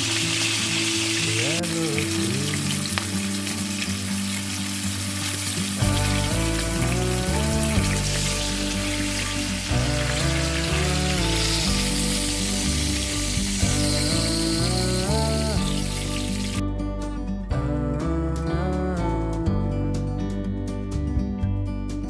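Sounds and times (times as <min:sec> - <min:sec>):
food sizzling in oil: 0:00.0 - 0:16.6
background music: 0:00.0 - 0:22.0.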